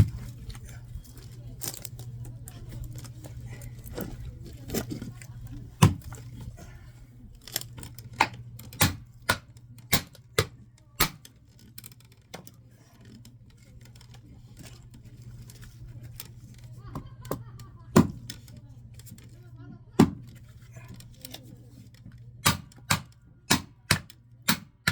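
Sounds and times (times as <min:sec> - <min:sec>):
steady low hum: 0:00.0 - 0:24.9
blade chopping wood: 0:05.8 - 0:06.3, 0:08.1 - 0:11.3, 0:18.0 - 0:18.4, 0:20.0 - 0:20.4, 0:22.4 - 0:24.9.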